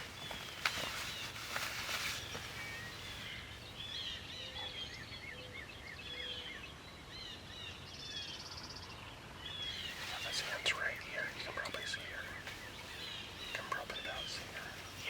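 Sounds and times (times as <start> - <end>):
brief rustle: 0.0 - 3.3
songbirds chirping and singing: 0.0 - 15.0.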